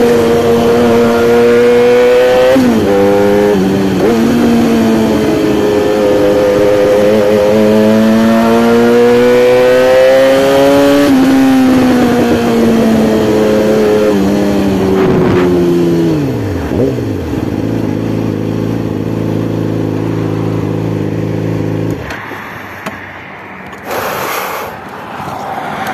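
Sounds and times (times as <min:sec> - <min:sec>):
short hiss: 0:23.8 - 0:24.9.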